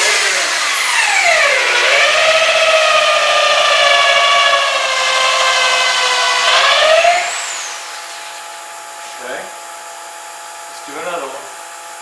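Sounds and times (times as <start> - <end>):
electric drill whining in wood: 0.0 - 9.0.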